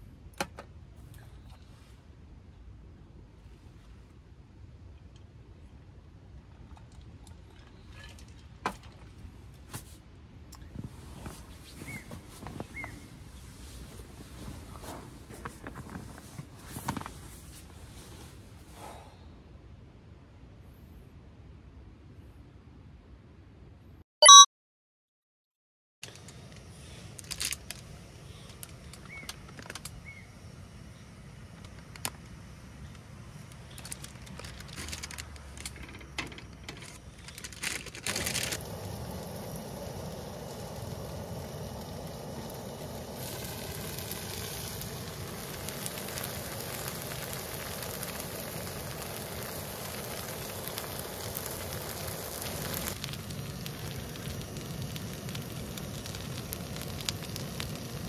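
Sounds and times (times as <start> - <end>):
food sizzling on griddle: 38.5 - 58.0.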